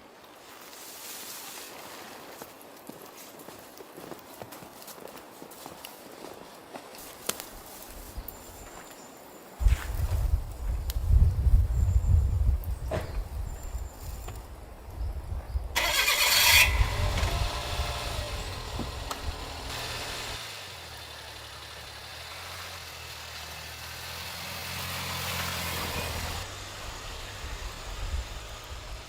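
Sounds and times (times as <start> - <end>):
engine running: 15.8 - 29.0
low rumbling: 16.5 - 20.4.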